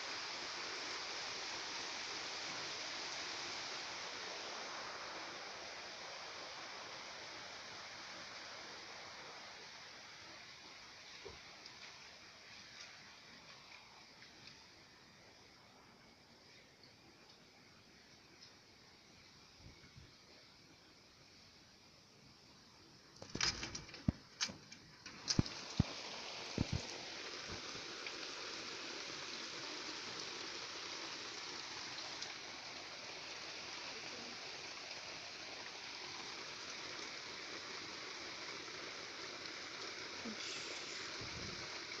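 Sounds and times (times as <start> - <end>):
floodwater rushing: 25.0 - 42.0.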